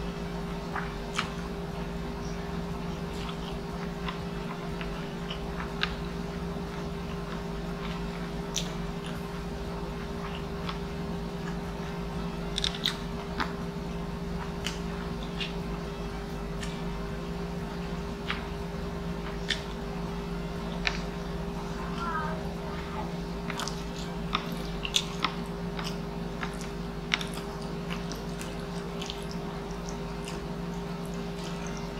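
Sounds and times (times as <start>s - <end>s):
steady low hum: 0.0s - 31.9s
person chewing with mouth clicks: 0.7s - 1.5s, 3.0s - 6.0s, 6.6s - 9.3s, 9.9s - 13.6s, 14.4s - 15.7s, 19.2s - 19.9s, 23.4s - 31.9s.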